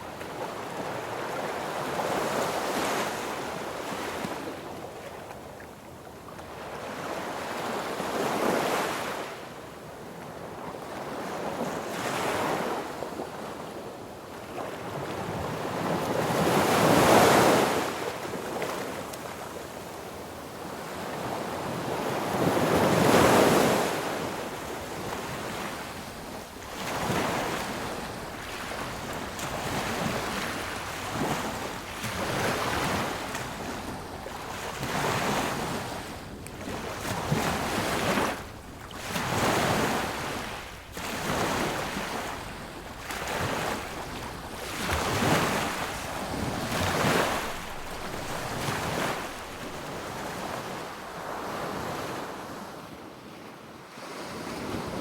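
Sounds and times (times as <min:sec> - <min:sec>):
sea waves breaking on beach: 0:14.6 - 0:19.8, 0:20.5 - 0:52.8.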